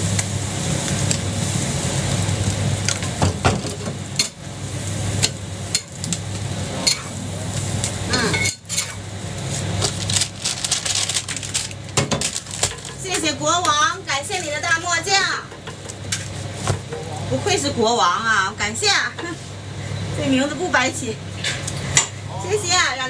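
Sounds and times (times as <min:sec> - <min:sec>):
food sizzling: 0:00.0 - 0:23.0
steady low hum: 0:00.0 - 0:23.0
metal spatula scraping hot plate: 0:07.8 - 0:09.1.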